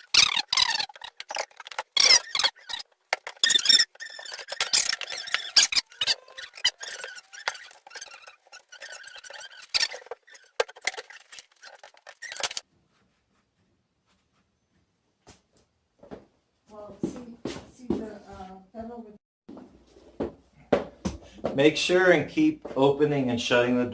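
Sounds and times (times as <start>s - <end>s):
door squeaking: 0.0s - 12.6s.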